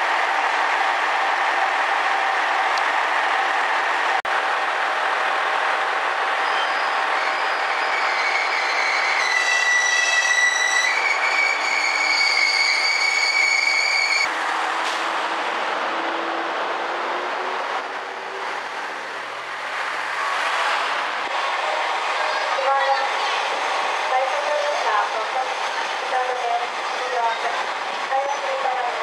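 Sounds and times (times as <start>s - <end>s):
high brake squeal: 6.4s - 14.3s.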